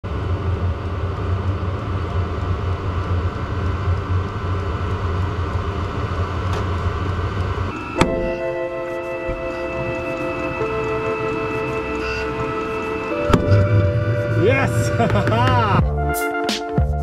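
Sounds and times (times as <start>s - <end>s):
low mechanical rumble: 0.0s - 16.1s
music: 7.7s - 17.0s.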